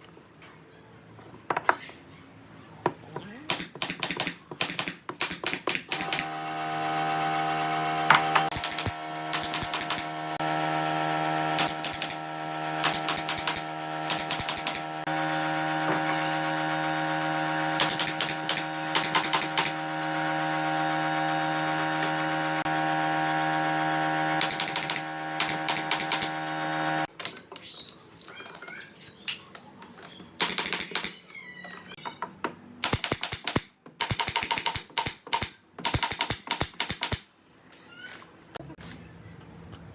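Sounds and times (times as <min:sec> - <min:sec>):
electric power tool running: 0:05.9 - 0:27.1.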